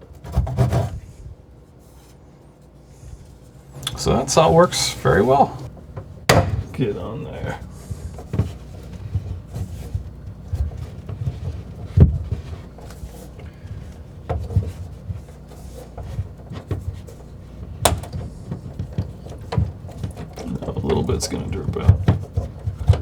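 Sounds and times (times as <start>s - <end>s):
knocks on plastic pipes: 6.3s - 6.7s.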